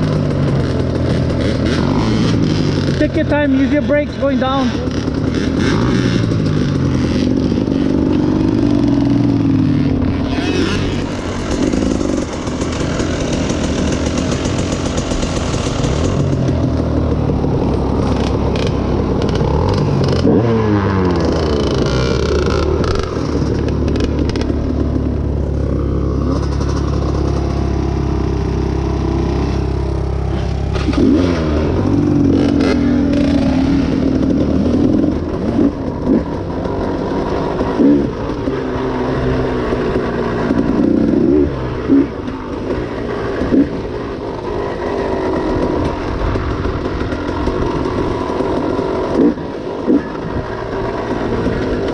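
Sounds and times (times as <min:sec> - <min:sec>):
dirt bike engine revving: 0:04.8 - 0:14.5.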